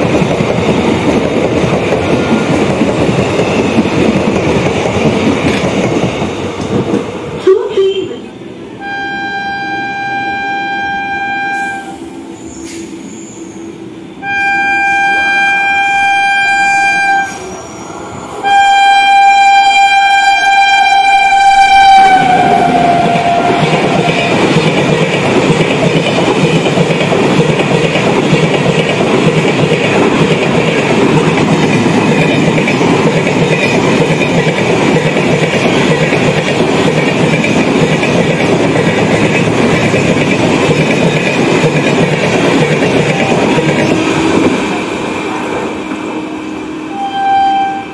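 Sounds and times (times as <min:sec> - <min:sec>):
train coaches passing: 0:00.0 - 0:47.9
locomotive horn blasts: 0:08.8 - 0:12.0, 0:14.2 - 0:17.4, 0:18.4 - 0:23.7, 0:46.9 - 0:47.9.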